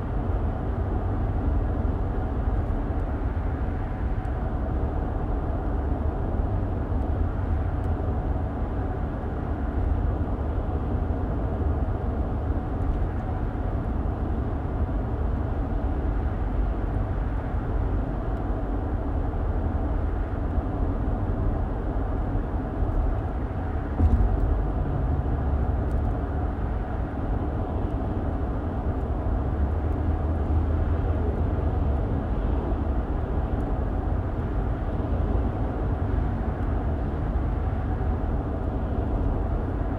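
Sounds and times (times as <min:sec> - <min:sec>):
car interior road rumble: 0:00.1 - 0:39.9
car bump: 0:24.0 - 0:24.6.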